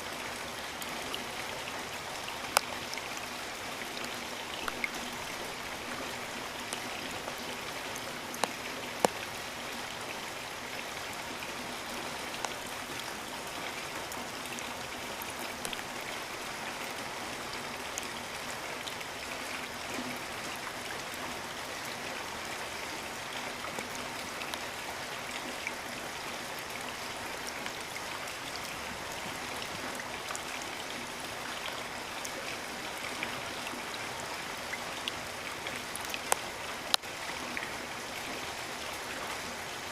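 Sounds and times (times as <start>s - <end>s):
raindrops ticking on leaves: 0.0s - 39.9s
steady rainfall: 0.0s - 39.9s.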